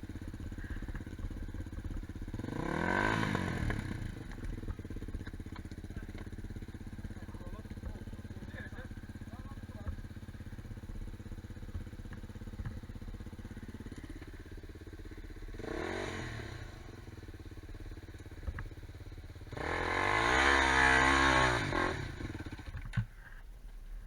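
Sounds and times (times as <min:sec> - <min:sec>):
quad bike engine revving: 0:00.0 - 0:23.0
engine knocks: 0:00.3 - 0:14.4.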